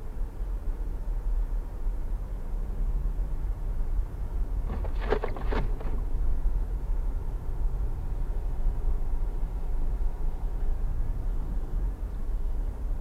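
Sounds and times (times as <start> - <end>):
car cabin rumble on highway: 2.9 - 13.0.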